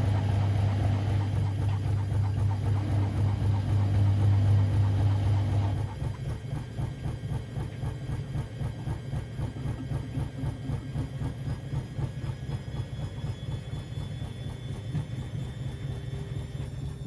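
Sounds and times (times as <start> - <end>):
faint high motor whine: 0.0 - 6.8, 8.8 - 17.0
washing machine pulsing rumble: 0.0 - 17.0.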